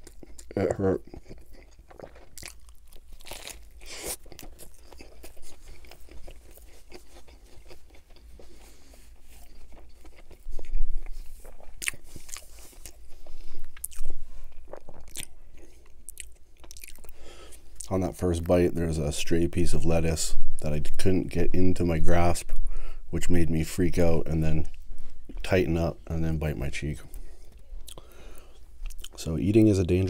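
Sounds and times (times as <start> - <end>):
crunchy chewing of sandwich: 0.0 - 17.9.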